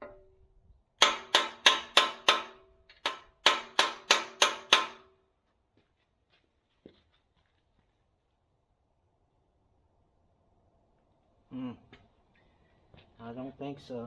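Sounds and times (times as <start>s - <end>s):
hammer striking steel pin: 0.0s - 0.4s, 1.0s - 5.1s.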